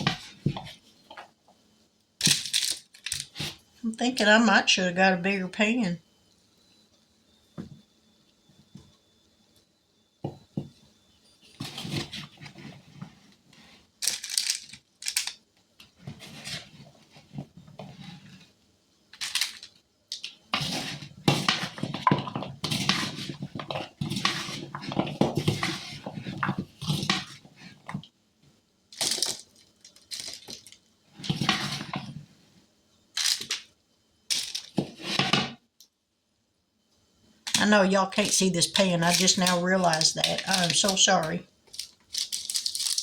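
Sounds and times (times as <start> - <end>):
rustling and shaking: 38.2 - 43.0.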